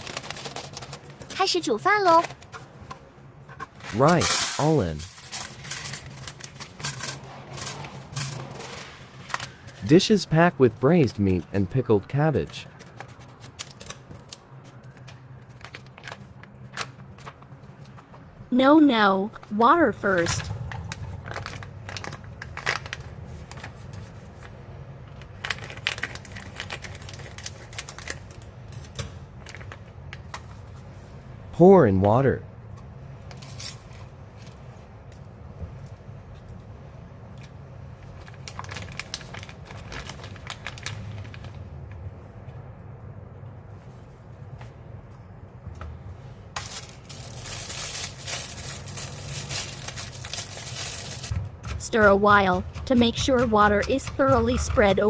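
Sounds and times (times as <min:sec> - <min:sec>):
plastic packaging clicks and crinkles: 0:00.0 - 0:01.4, 0:04.8 - 0:07.8, 0:12.4 - 0:18.0, 0:20.6 - 0:30.5, 0:37.4 - 0:42.0, 0:46.6 - 0:51.4
steady low hum: 0:00.0 - 0:55.0.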